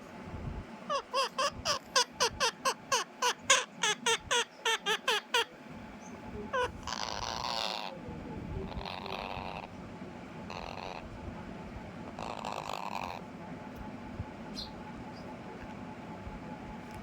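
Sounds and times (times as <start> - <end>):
small animal squeaking: 0.9 - 8.0, 8.7 - 9.7, 10.5 - 11.1, 12.2 - 13.2.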